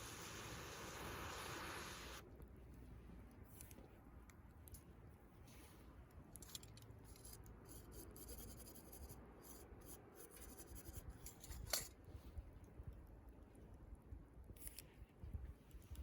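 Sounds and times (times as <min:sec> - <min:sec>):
campfire crackling: 0:00.0 - 0:04.8.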